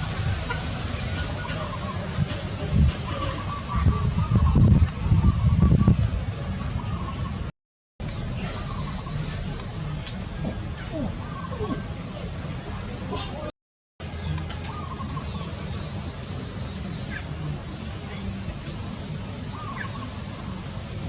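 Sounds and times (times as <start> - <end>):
birds chirping: 0.4 - 7.5, 8.2 - 13.5
steady low rumble: 2.3 - 12.0.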